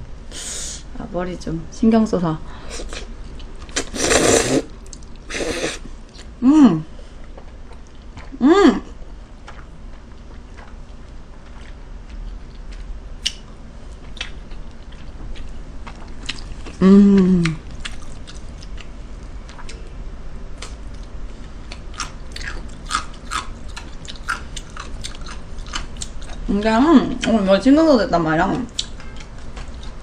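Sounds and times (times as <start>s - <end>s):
person chewing food: 2.8s - 6.4s, 7.2s - 8.4s, 9.4s - 19.9s, 20.6s - 26.5s, 28.7s - 30.0s.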